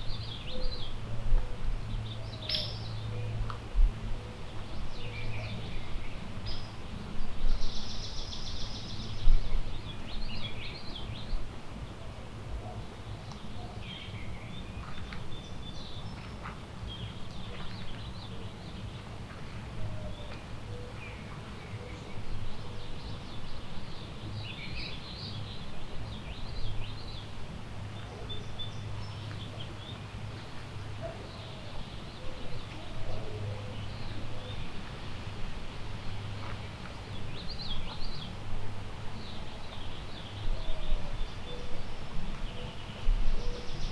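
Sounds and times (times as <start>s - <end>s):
songbirds chirping: 12.7s - 43.9s.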